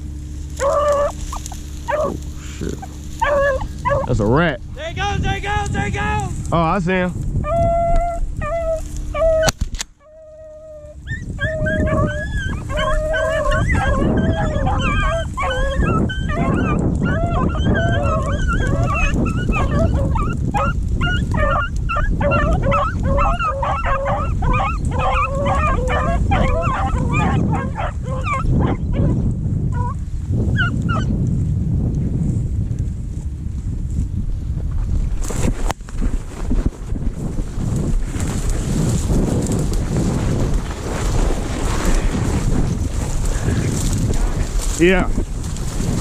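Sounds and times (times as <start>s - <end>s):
low rumble: 0.0s - 46.0s
dogs baying and yipping: 0.5s - 4.4s, 7.4s - 31.1s.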